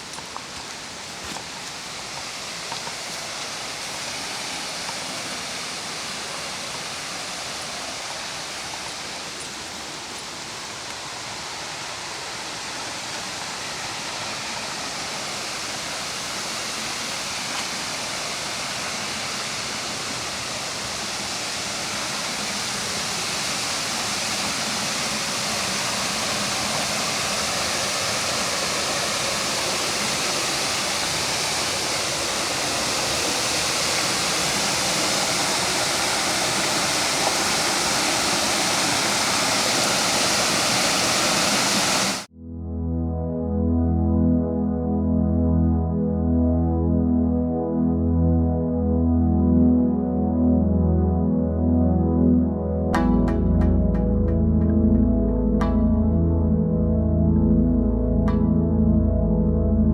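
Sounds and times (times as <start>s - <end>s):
waterfall rushing water: 0.0s - 42.3s.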